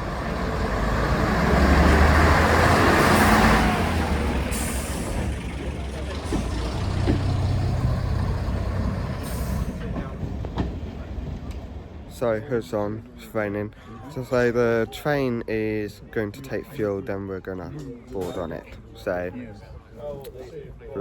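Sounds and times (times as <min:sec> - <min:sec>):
diesel railcar engine running: 0:00.0 - 0:12.6.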